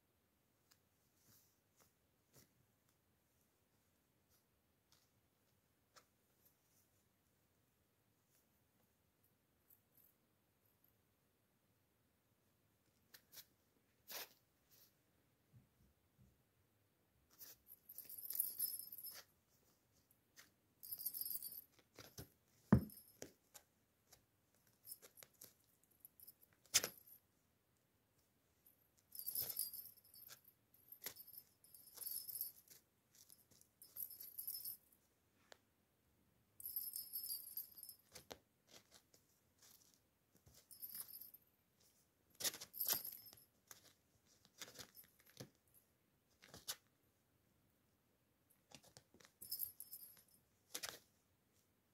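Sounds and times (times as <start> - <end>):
soft rustling: 0.5 - 9.0, 12.8 - 15.2, 28.2 - 35.6, 36.7 - 47.0
small bell jingling: 17.4 - 19.3, 20.8 - 22.1, 22.7 - 23.2, 29.0 - 35.0, 36.6 - 38.8, 40.4 - 41.5, 42.4 - 43.9, 49.3 - 50.4.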